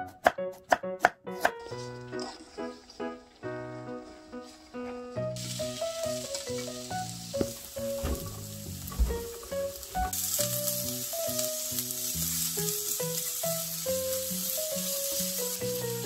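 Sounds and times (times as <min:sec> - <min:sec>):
simple background music melody: 0:00.0 - 0:16.0
food sizzling in frying pan: 0:05.2 - 0:16.0.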